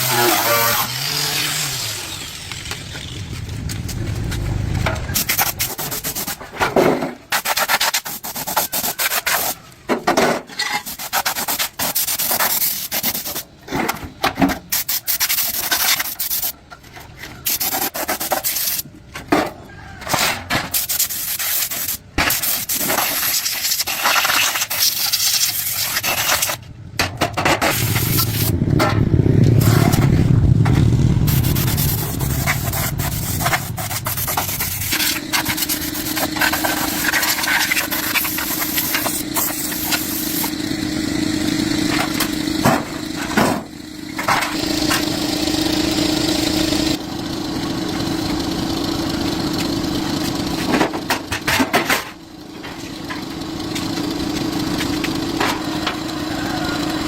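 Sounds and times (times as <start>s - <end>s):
low machine rumble: 0.0s - 6.8s, 26.2s - 57.0s
abrupt cuts: 0.0s - 9.6s, 21.7s - 47.0s
scraping and sanding: 0.0s - 13.9s, 14.7s - 18.9s, 20.6s - 26.6s, 27.4s - 28.6s, 31.2s - 40.6s
machine humming steadily: 0.0s - 57.0s.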